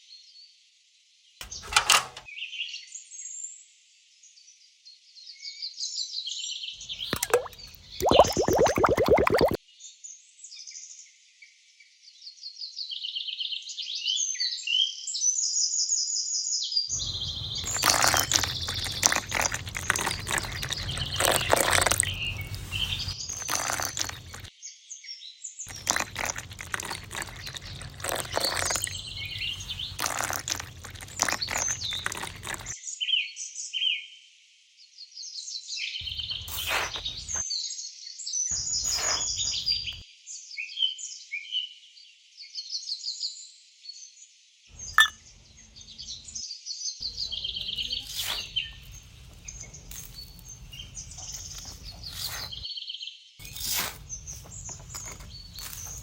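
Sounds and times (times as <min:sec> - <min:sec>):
small birds chirping: 0:06.8 - 0:09.6, 0:16.9 - 0:24.5, 0:25.7 - 0:32.8, 0:36.0 - 0:37.5, 0:38.5 - 0:40.0, 0:44.7 - 0:52.6, 0:53.4 - 0:56.0.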